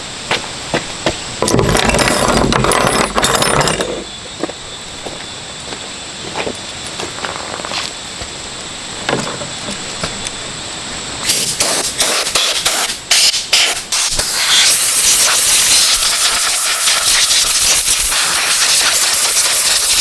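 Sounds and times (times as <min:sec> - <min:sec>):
small parts and tools clinking: 0:01.4 - 0:04.4, 0:06.5 - 0:07.7
hissing spray jet: 0:11.2 - 0:20.0.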